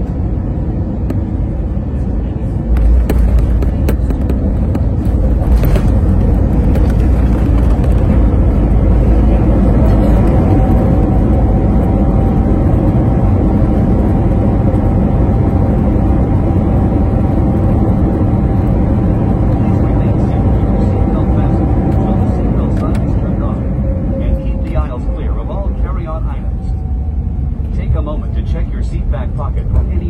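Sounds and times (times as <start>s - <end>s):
airliner cabin rumble: 0.0s - 30.0s
faint steady whine: 8.5s - 30.0s.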